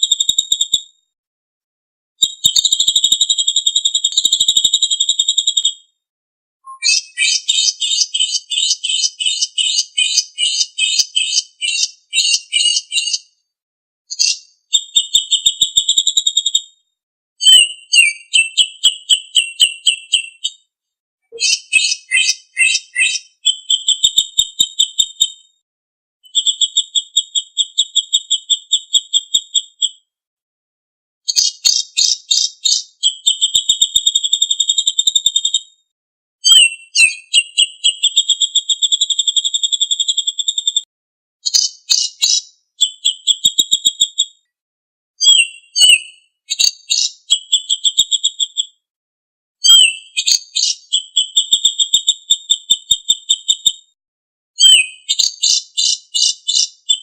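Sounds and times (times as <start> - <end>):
songbird trills and rattles: 6.7 - 13.3, 31.3 - 35.6, 41.4 - 44.0, 45.2 - 48.6, 49.6 - 53.5, 54.6 - 57.0.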